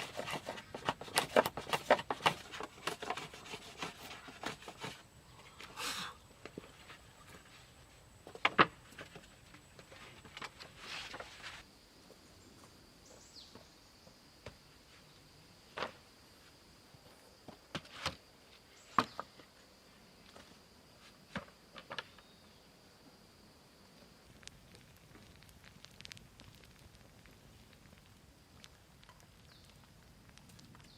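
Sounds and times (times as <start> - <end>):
rustle: 0.0 - 30.9.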